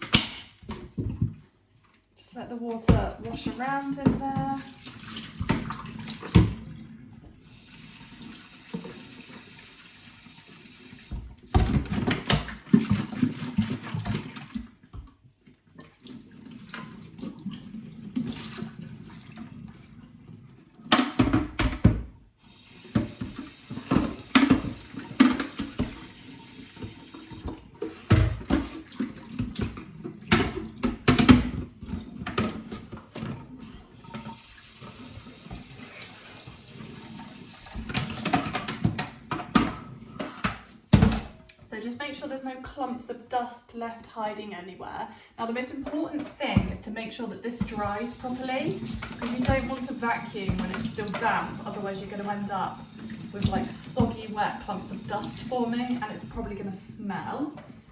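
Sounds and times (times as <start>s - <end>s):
water sloshing in plastic bin: 0.0s - 9.6s, 10.2s - 42.2s, 45.6s - 57.9s.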